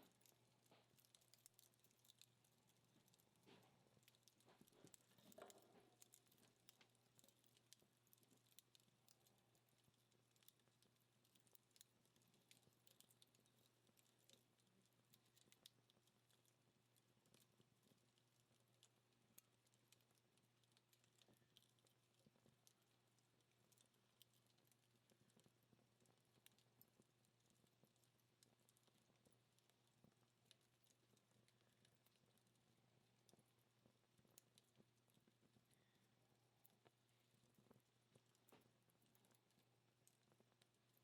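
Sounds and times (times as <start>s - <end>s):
wood fire crackling: 0.0s - 17.8s
faint steady hum: 0.0s - 41.0s.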